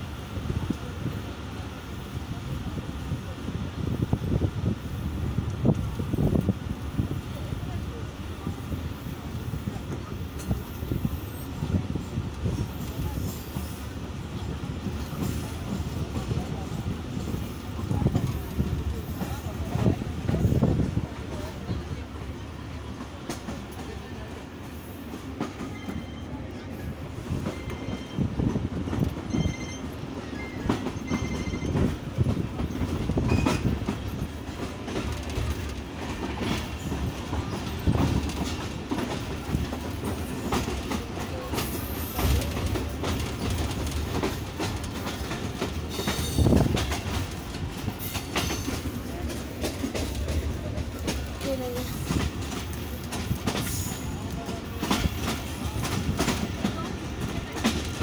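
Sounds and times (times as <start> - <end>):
train coaches rumbling: 0.0 - 58.0
wheels clacking over rail joints: 27.4 - 58.0.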